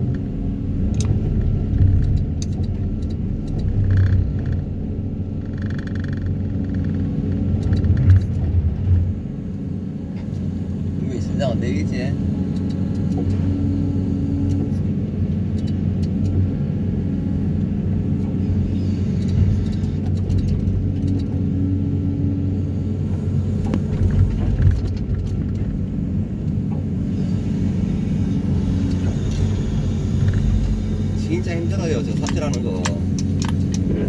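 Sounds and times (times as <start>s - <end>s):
diesel engine droning: 0.0s - 34.0s
light clicks and knocks: 32.0s - 34.0s.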